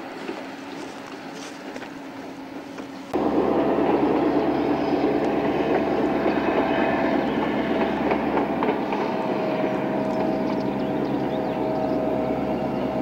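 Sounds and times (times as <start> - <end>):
train running noise: 0.0 - 13.0
whining tone: 3.2 - 13.0.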